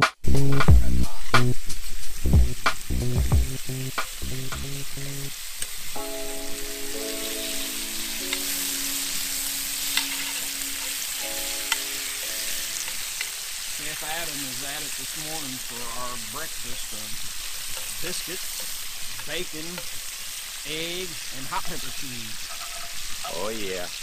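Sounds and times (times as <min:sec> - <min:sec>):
meat sizzling in skillets: 0:00.4 - 0:24.0
soft background music: 0:06.0 - 0:13.2
metal tongs clicking on pans: 0:08.2 - 0:08.6, 0:09.8 - 0:11.9, 0:12.8 - 0:13.4, 0:17.6 - 0:20.0.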